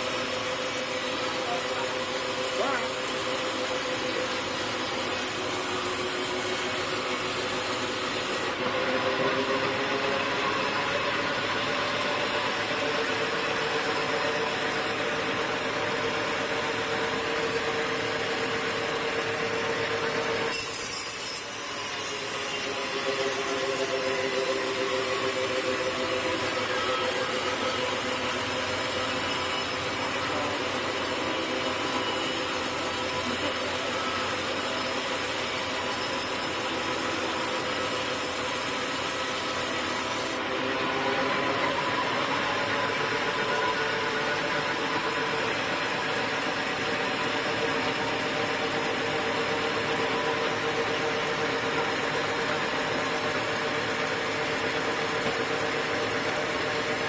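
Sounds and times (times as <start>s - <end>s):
saw grinding through log: 0.0s - 10.7s, 20.3s - 50.7s
engine tone: 0.0s - 57.0s.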